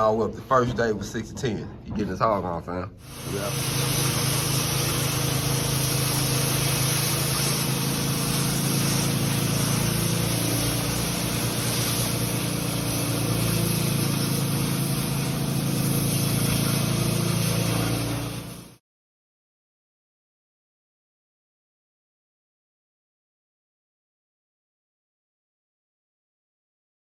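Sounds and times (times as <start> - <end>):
even hiss: 3.0 - 18.6
machine hum: 3.0 - 18.7.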